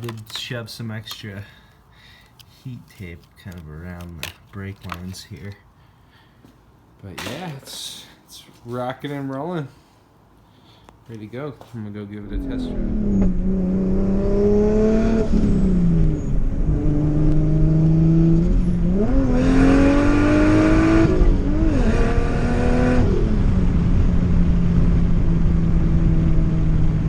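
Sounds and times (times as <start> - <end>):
car engine accelerating hard: 12.2 - 27.0.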